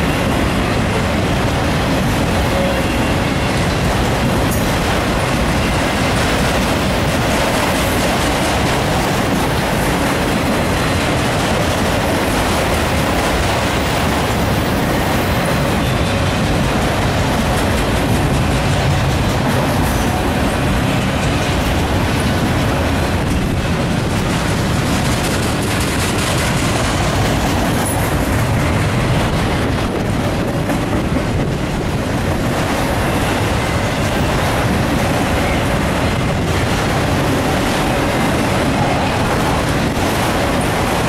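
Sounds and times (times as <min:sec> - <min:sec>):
steel wheels running on rails: 0:00.0 - 0:41.0.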